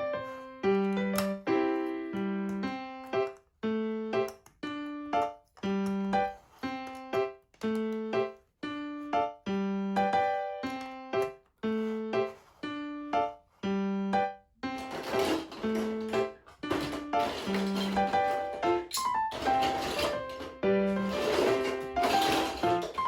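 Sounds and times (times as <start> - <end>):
bouncy keyboard tune: 0.0 - 23.0.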